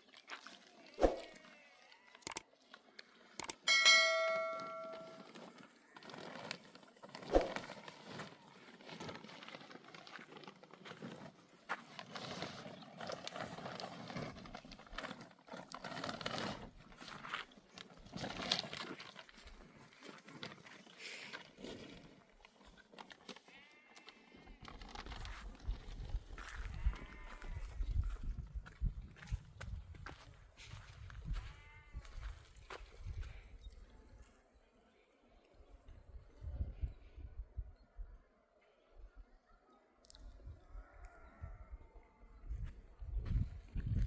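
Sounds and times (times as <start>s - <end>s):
livestock bleating: 1.3s - 2.2s, 23.5s - 24.3s, 26.7s - 27.7s, 31.3s - 32.3s.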